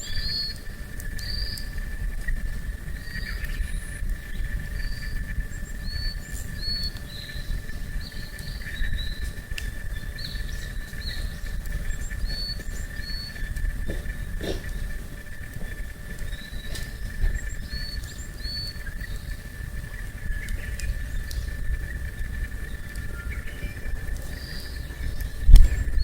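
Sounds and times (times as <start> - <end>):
faint campfire crackles: 0.0 - 26.0
high insect drone: 0.0 - 26.0
low rumble: 0.0 - 26.0
bird high call notes: 16.2 - 26.0.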